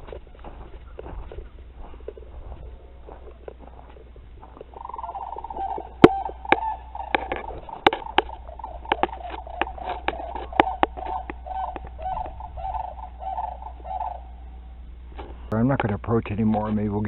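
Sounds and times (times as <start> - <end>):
cranes rattling bugle call: 0.0 - 17.0
sharp clicks and knocks: 5.8 - 12.0.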